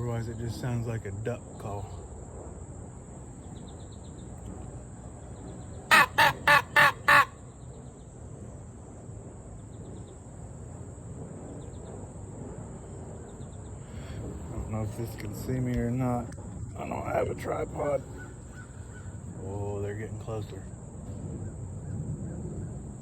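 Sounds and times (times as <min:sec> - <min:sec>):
crow call caws: 0:05.9 - 0:07.5, 0:17.8 - 0:19.5.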